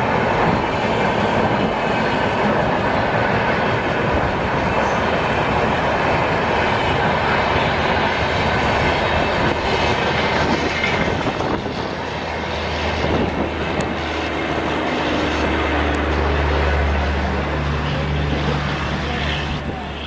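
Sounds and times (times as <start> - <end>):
steady low drone: 0.0 - 20.0
wheel and rail rushing noise: 0.0 - 20.0.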